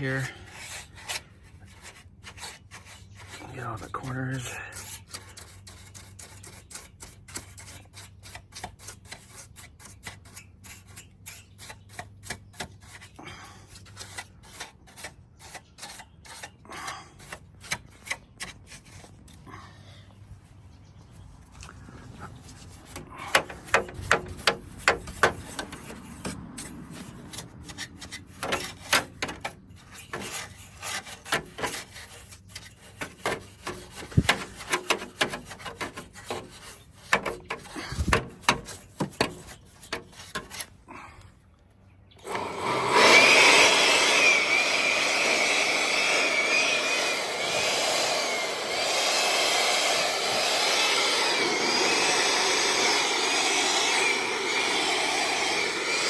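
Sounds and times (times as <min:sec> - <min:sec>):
stiff brush scrubbing: 0:00.0 - 0:20.6, 0:21.2 - 0:41.2, 0:42.2 - 0:56.0
machine whoosh with whine: 0:42.6 - 0:56.0.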